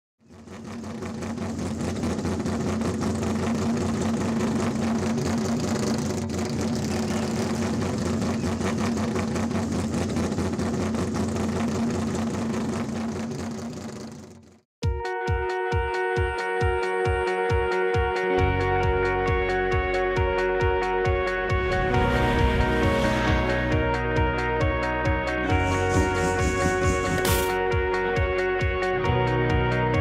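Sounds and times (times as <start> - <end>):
car engine running: 0.2 - 14.6, 21.4 - 28.4
broad rushing noise: 21.5 - 24.2, 25.4 - 27.6.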